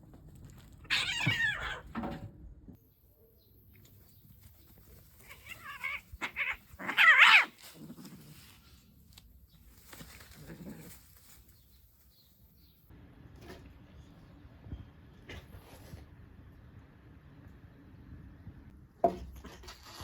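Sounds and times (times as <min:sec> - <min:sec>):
cats yowling: 0:00.8 - 0:01.9, 0:05.2 - 0:07.6
cats growling: 0:05.2 - 0:08.5.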